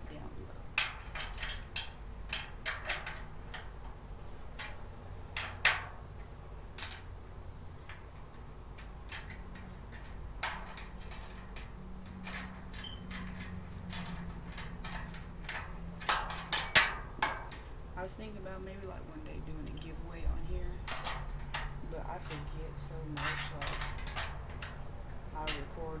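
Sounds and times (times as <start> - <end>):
cart parts clicking and tapping: 8.7 - 17.6.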